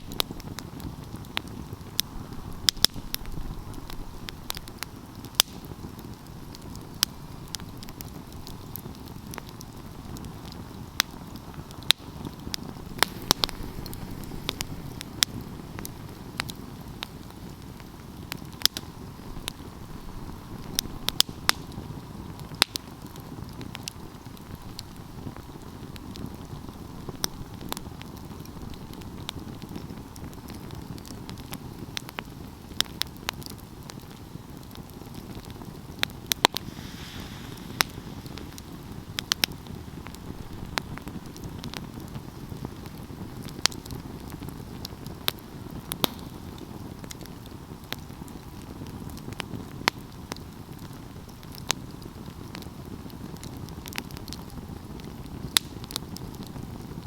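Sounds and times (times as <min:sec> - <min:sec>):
low fire rumble: 0:00.0 - 0:57.0
wood fire crackling: 0:00.0 - 0:57.0
short hiss: 0:12.8 - 0:16.2, 0:36.3 - 0:40.3.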